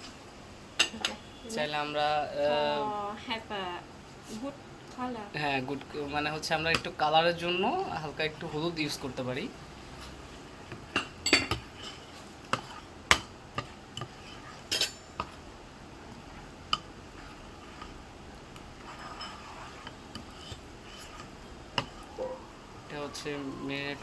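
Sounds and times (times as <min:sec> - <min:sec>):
spoon clinking against a bowl: 0:11.0 - 0:12.0, 0:12.6 - 0:15.4.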